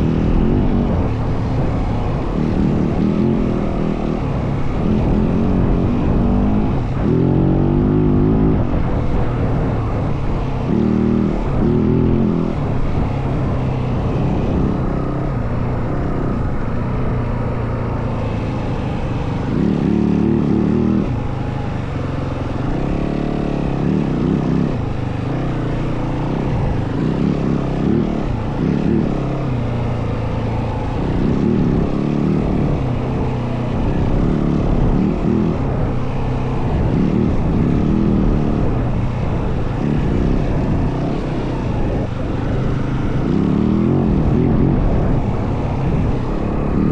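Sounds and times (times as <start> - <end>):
dirt bike engine revving: 36.6 - 46.9.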